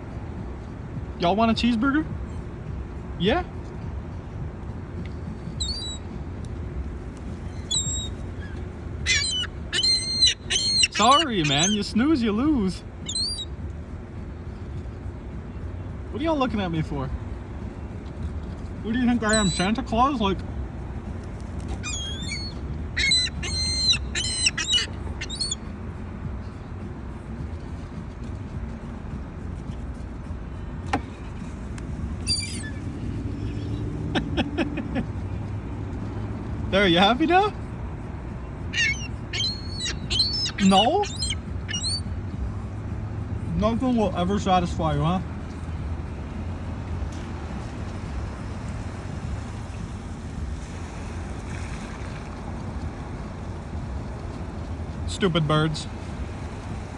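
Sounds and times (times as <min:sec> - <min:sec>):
city traffic rumble: 0:00.0 - 0:56.9
gulls calling: 0:05.6 - 0:06.1, 0:07.3 - 0:13.6, 0:18.9 - 0:20.4, 0:21.7 - 0:25.8, 0:32.0 - 0:35.1, 0:38.6 - 0:42.2
low background rumble: 0:12.7 - 0:36.9.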